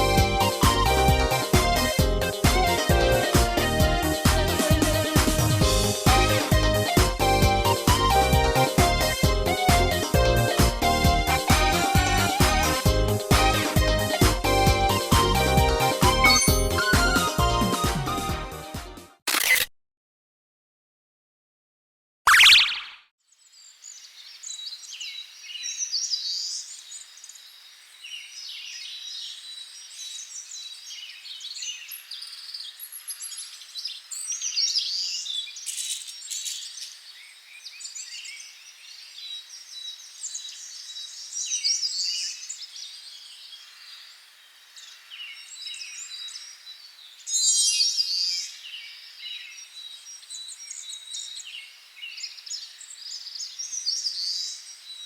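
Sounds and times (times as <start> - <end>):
rattling bird trill: 16.3 - 16.8
songbirds chirping: 23.3 - 55.0.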